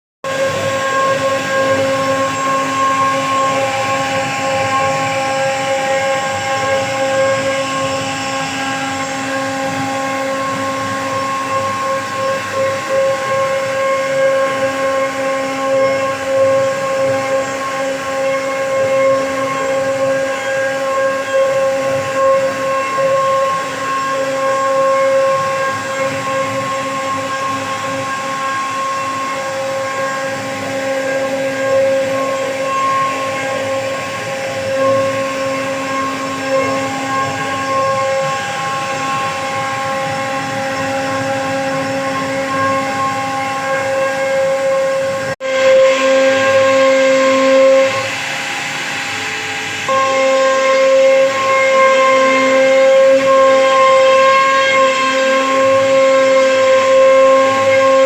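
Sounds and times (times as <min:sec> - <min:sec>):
router spindle whining: 0:00.3 - 0:58.0
hiss of cutting wood: 0:45.5 - 0:58.0.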